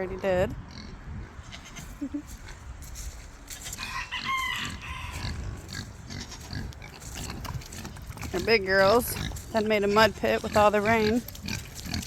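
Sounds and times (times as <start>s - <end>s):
rooster crowing: 3.7s - 5.4s.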